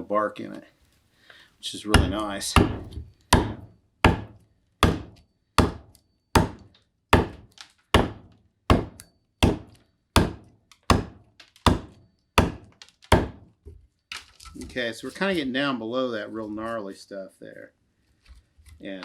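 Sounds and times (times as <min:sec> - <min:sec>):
carving tool chopping wood: 0:01.9 - 0:13.5.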